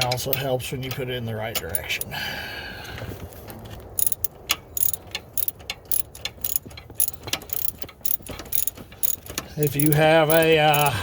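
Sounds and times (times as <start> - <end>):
hand ratchet clicking: 1.6 - 2.1, 3.9 - 11.0
metallic ring: 1.7 - 2.1, 4.0 - 11.0.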